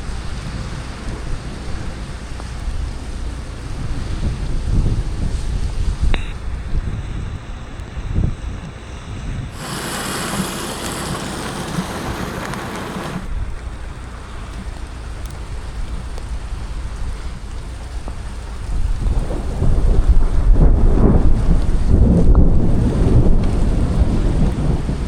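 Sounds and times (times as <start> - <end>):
wind buffeting microphone: 3.8 - 14.0, 15.5 - 25.0
rain hiss: 9.5 - 24.7
loud rush of hiss: 9.6 - 13.3.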